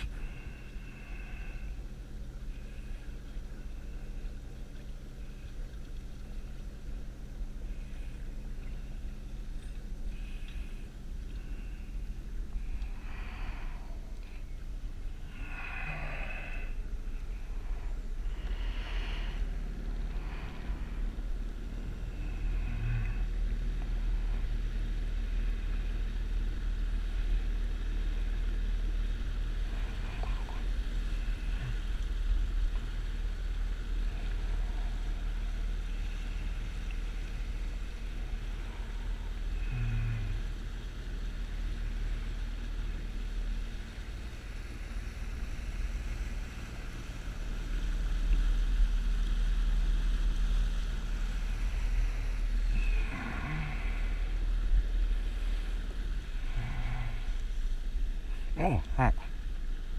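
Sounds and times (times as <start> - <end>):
engine running low rumble: 0.0 - 59.9.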